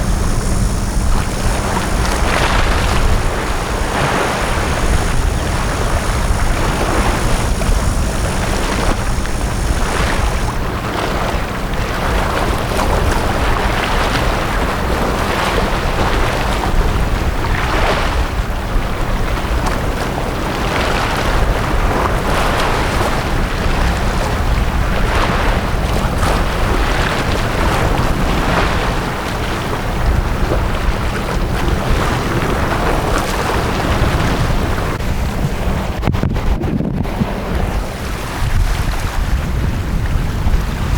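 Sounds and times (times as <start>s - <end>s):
sea waves washing onto beach: 0.0s - 40.9s
wind rumble on microphone: 0.0s - 40.9s.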